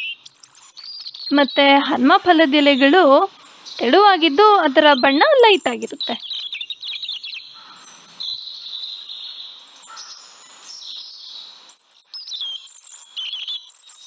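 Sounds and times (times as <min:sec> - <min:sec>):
high steady bird call: 0:00.0 - 0:10.9
birds twittering: 0:00.0 - 0:14.0.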